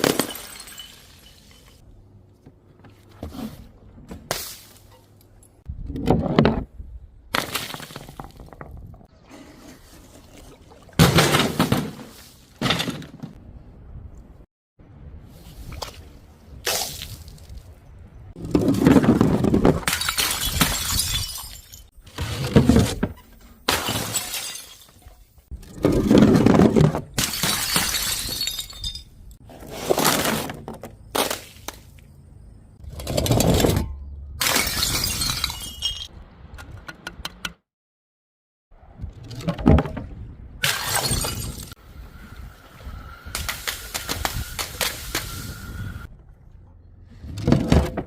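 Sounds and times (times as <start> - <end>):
glass bottles shattering: 0.0 - 1.8, 19.8 - 21.9, 23.7 - 25.2, 27.2 - 29.2, 34.4 - 36.1, 40.6 - 41.8.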